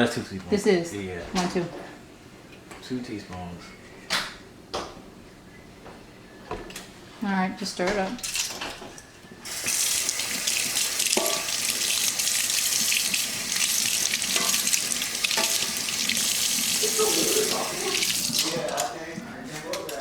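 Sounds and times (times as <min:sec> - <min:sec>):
tap water running into sink: 0:09.5 - 0:18.9.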